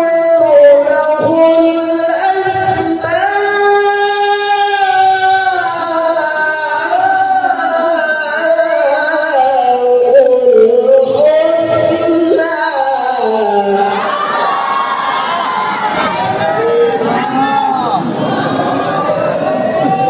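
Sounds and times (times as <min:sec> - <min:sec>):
person reciting melodically: 0:00.0 - 0:14.2.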